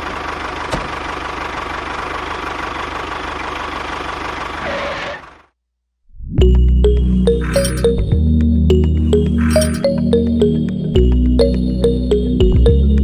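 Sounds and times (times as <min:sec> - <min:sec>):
engine running with whine: 0:00.0 - 0:05.6, 0:06.4 - 0:13.0
music: 0:06.2 - 0:13.0.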